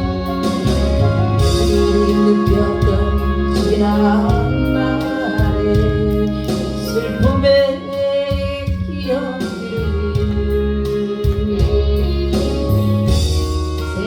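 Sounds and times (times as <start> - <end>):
person singing gospel song: 0.0 - 14.0
sustained instrumental chords: 0.0 - 14.0.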